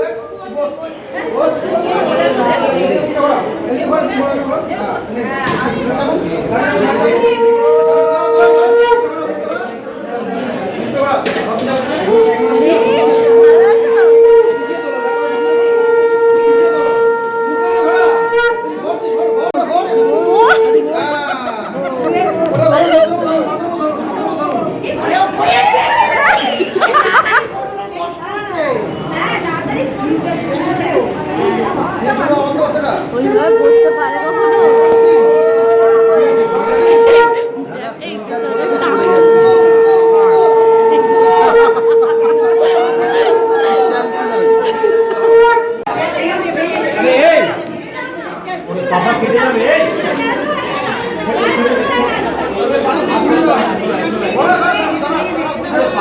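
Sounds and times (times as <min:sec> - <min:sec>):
faint chatter: 0:00.0 - 0:56.0
voices: 0:04.5 - 0:56.0
conch shell blown: 0:06.8 - 0:09.5, 0:12.0 - 0:21.1, 0:33.2 - 0:46.2.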